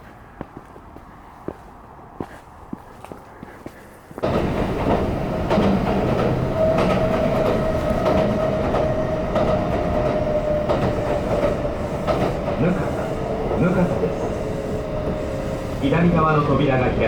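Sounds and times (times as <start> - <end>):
train rumble: 0.0 - 17.0
rail joint clicks: 4.1 - 16.6
electric train whine: 4.2 - 17.0.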